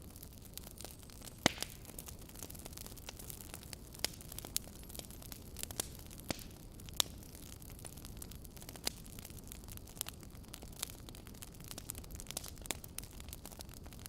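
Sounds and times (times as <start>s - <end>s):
sharp fire pops: 0.0s - 9.4s
logs crackling in fireplace: 0.0s - 14.0s.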